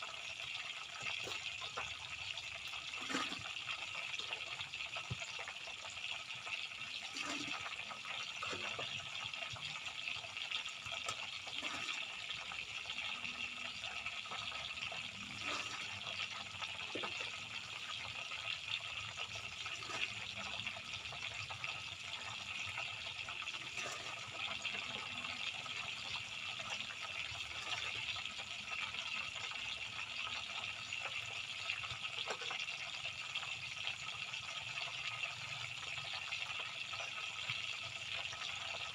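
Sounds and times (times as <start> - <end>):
oil popping and crackling: 0.0 - 38.9
tofu sizzling in hot oil: 0.0 - 38.9.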